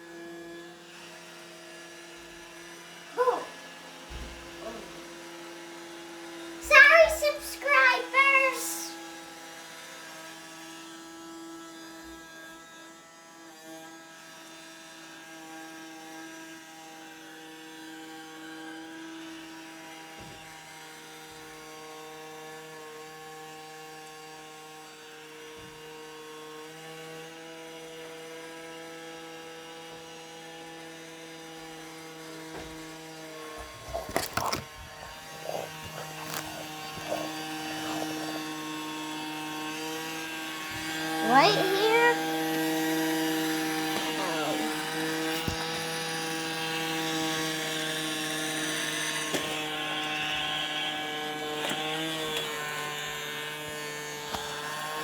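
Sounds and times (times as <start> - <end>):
robot vacuum motor hum: 31.3 - 55.0.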